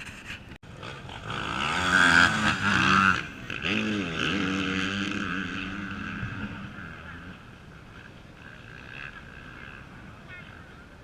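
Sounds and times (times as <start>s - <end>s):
motorcycle engine revving: 0.6s - 10.8s.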